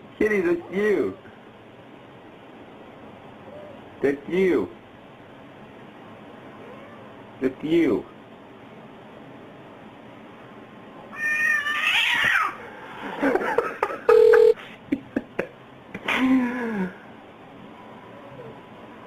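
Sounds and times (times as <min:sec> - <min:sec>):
cat meowing: 0:06.6 - 0:07.1, 0:11.1 - 0:12.6.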